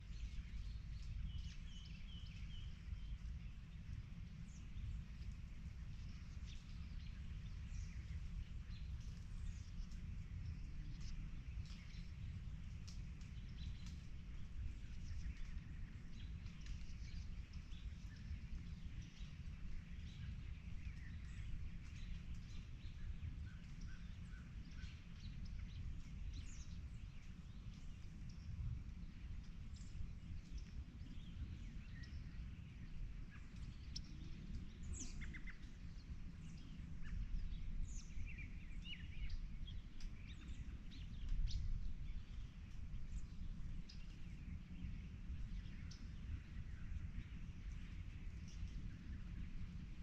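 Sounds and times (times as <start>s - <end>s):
songbirds chirping and singing: 20.0s - 49.8s.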